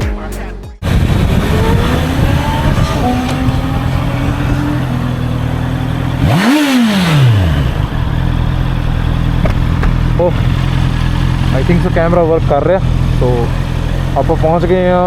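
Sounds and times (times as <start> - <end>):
motorcycle engine revving: 0.8 - 15.0.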